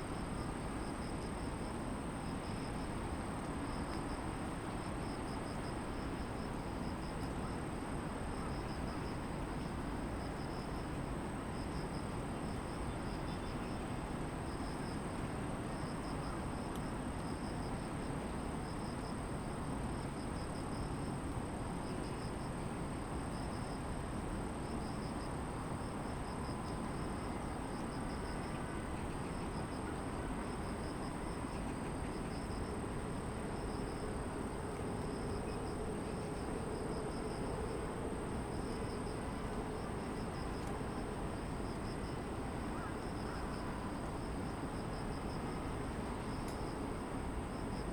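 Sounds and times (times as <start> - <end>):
distant city traffic hum: 25.4 - 47.9
insect pulsing chirp: 33.4 - 46.8.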